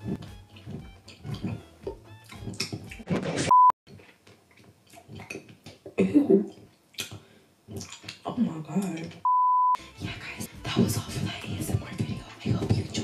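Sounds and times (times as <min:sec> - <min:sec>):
person chewing a snack: 0:00.0 - 0:08.2
censor bleep: 0:03.5 - 0:03.8, 0:09.3 - 0:09.8.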